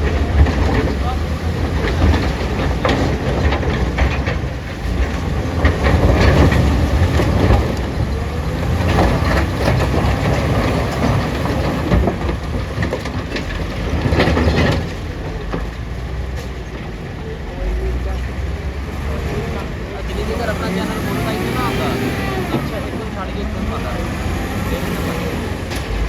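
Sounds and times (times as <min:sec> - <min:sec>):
metallic clanks and knocks: 0:00.0 - 0:17.0
diesel engine under load: 0:00.0 - 0:26.0.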